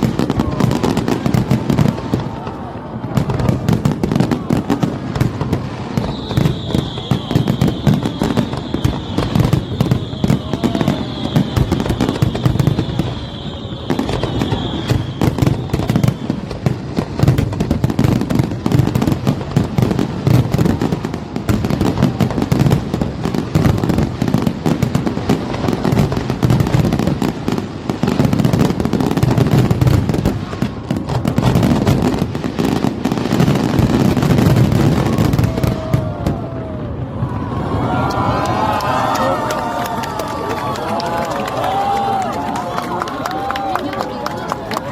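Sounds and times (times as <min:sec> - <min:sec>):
fireworks bangs and crackles: 0:00.0 - 0:44.9
high firework whistle: 0:05.4 - 0:17.3.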